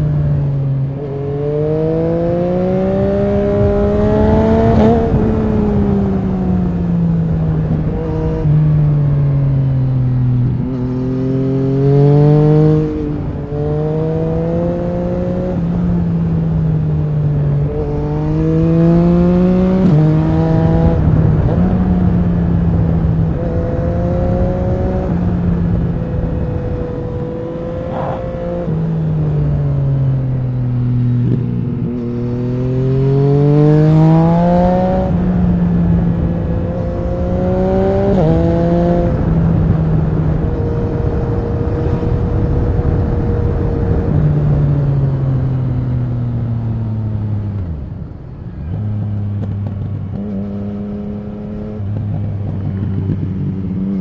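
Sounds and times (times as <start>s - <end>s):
motorcycle engine revving through gears: 0.0s - 54.0s
wind rumbling on microphone: 0.0s - 54.0s.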